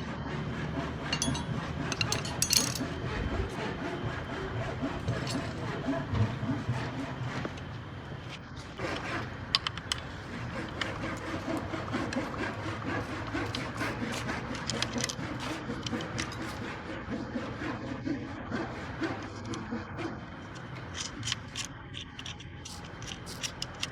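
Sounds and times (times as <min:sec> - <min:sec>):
steady low hum: 0:00.0 - 0:23.9
tools clicking and scraping metal: 0:00.8 - 0:17.9, 0:18.6 - 0:23.9.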